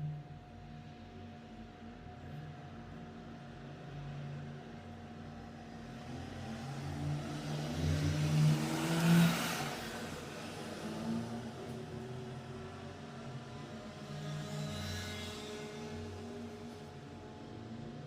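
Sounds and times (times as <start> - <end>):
motor vehicle passing by: 6.1 - 12.8.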